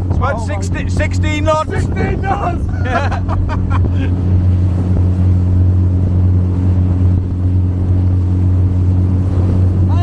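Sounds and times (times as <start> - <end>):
motorboat engine drone: 0.0 - 10.0
water rushing: 0.0 - 10.0
wind rushing: 0.0 - 10.0.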